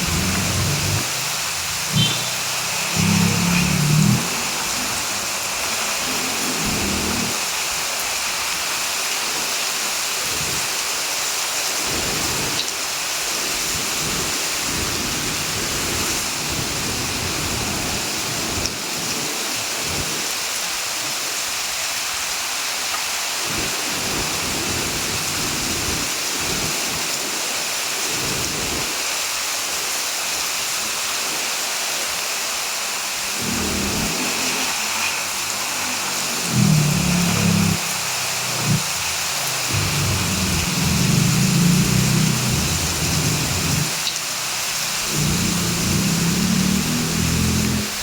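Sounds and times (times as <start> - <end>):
heavy rain: 0.0 - 48.0
low rumbles: 39.6 - 43.9.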